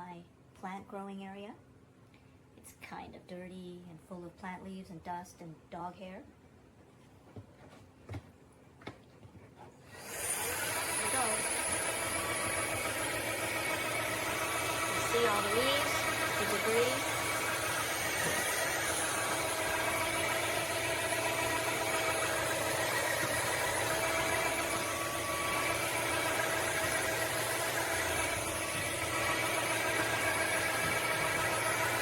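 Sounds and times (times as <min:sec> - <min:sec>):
vacuum mop motor whine: 0:09.9 - 0:32.0.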